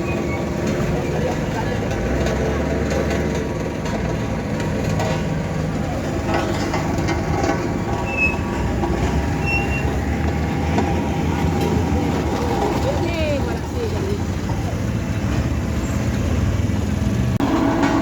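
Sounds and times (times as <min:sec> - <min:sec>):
heavy diesel machinery running: 0:00.0 - 0:18.0
brief high squeaks: 0:09.4 - 0:10.0.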